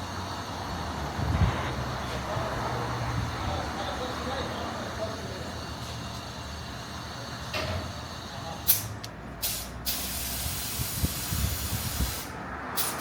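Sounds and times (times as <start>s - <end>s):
compressed air hissing: 5.0s - 13.0s.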